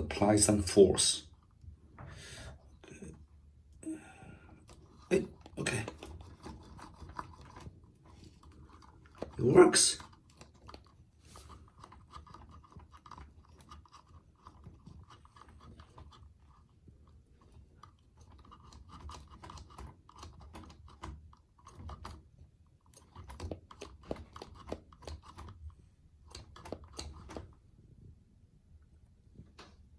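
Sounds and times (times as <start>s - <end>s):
light clicks and rubbing: 4.6s - 27.6s.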